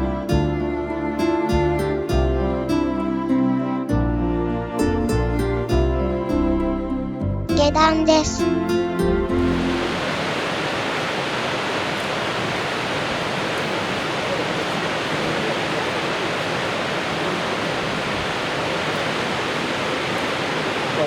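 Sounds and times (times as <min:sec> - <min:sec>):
waterfall rushing: 0:09.3 - 0:21.0.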